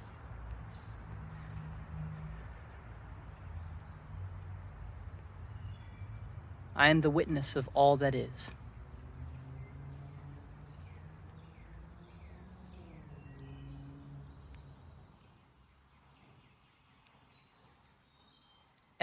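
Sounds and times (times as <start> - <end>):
high thin insect-like tone: 0.0 - 18.9
person speaking: 6.7 - 8.6.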